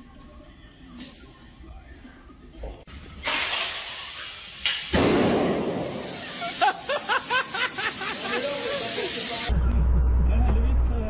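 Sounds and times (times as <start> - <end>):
air blast from hose: 3.3 - 9.5
air hissing from hose: 3.5 - 9.5.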